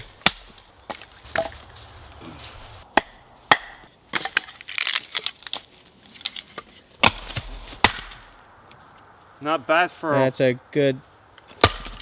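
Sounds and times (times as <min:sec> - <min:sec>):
axe chopping wood: 0:00.0 - 0:01.7, 0:02.8 - 0:04.6, 0:07.0 - 0:08.4, 0:11.6 - 0:12.0.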